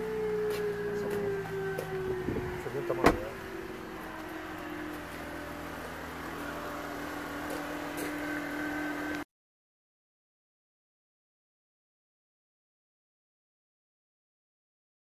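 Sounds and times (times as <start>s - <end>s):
steady mechanical hum: 0.0s - 9.3s.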